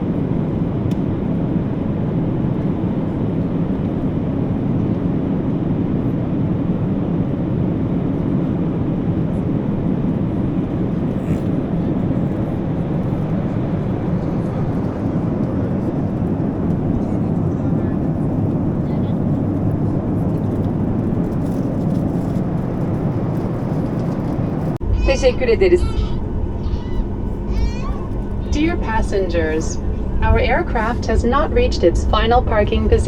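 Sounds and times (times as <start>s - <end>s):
aircraft engines at low power: 0.0s - 33.0s
cabin air-conditioning flow: 20.2s - 33.0s.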